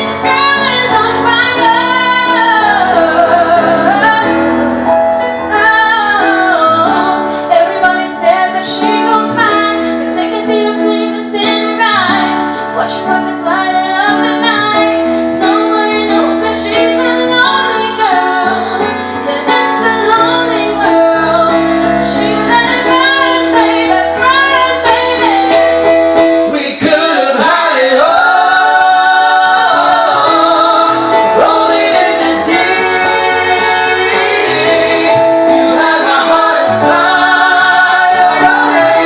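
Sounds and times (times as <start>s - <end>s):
woman singing pop song: 0.0s - 4.4s, 5.5s - 25.7s
sustained backing chords: 0.0s - 39.0s.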